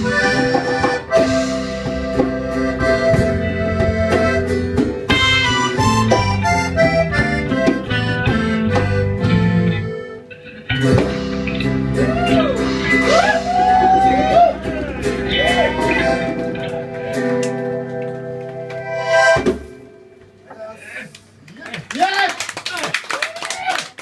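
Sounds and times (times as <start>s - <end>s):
drum hits: 0.0s - 9.5s, 10.8s - 17.4s, 19.2s - 20.6s
bass line: 0.0s - 20.5s
reedy lead instrument: 0.0s - 20.6s.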